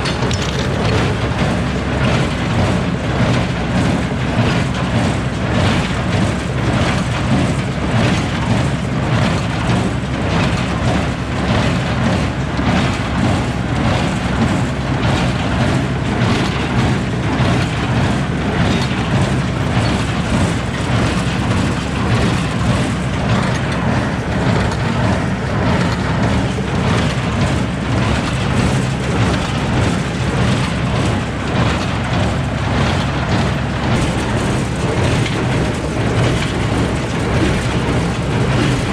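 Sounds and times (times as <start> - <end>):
baler machine hum: 0.0 - 38.9.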